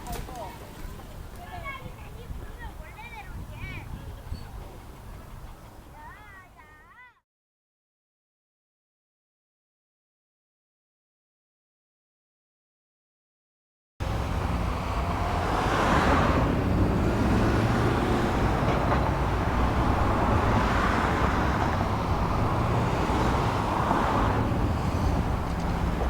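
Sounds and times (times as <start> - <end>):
road traffic rumble: 0.0 - 6.8, 14.0 - 26.0
vehicles passing: 0.0 - 6.8, 14.0 - 26.0.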